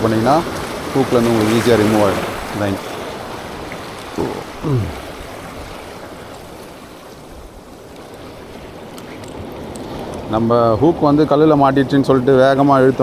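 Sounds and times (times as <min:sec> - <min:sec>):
water rushing and small waves: 0:00.0 - 0:13.0
falling voice-like sound: 0:04.2 - 0:05.0.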